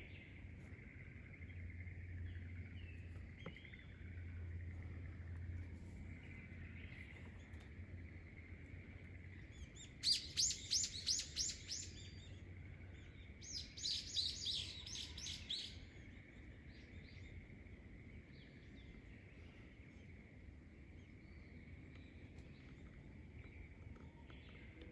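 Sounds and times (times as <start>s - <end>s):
songbird singing whistled notes: 9.4s - 16.1s.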